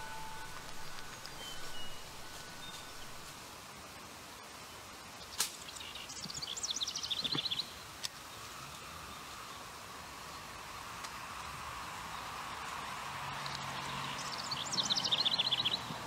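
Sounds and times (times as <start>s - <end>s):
songbird singing: 0.0s - 3.6s, 5.2s - 7.8s, 13.5s - 16.0s
faint outdoor background noise: 0.0s - 16.0s.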